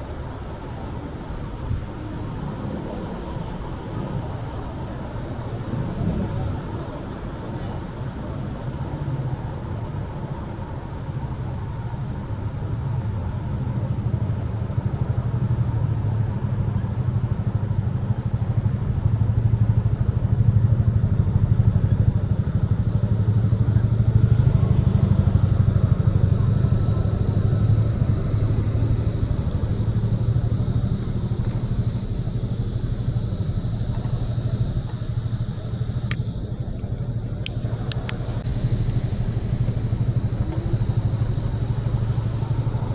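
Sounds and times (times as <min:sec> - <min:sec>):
wind buffeting microphone: 0:00.0 - 0:19.8.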